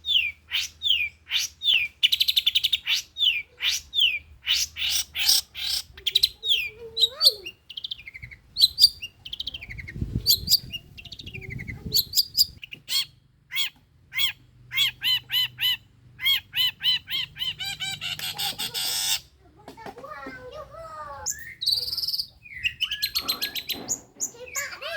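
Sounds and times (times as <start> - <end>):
harsh repeated bird notes: 0.0 - 19.3, 21.2 - 24.9
bird chirps and whistles: 21.3 - 24.7.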